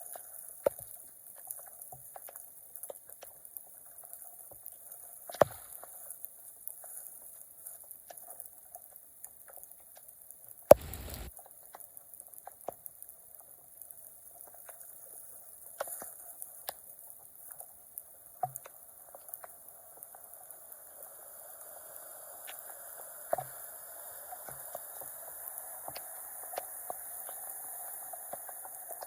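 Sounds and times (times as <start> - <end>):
sharp click: 10.7 - 11.3.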